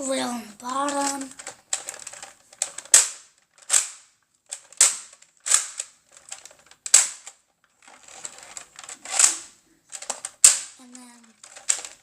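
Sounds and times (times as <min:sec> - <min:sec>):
faint rustling: 0:00.0 - 0:12.0
plastic toy blaster snaps: 0:02.8 - 0:05.9, 0:06.9 - 0:07.3, 0:10.0 - 0:10.8.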